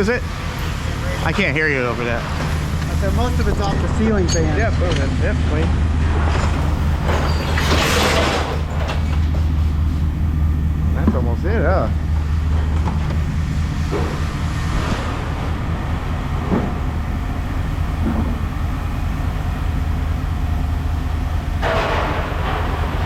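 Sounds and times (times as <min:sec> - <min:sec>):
scrap metal clanking and rattling: 0:00.0 - 0:10.1, 0:21.6 - 0:23.0
heavy machinery droning: 0:00.0 - 0:23.0.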